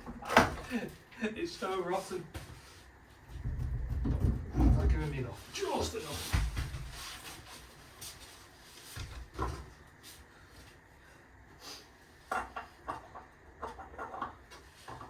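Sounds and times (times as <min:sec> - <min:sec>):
knocks and clunks on car: 0:03.4 - 0:05.0.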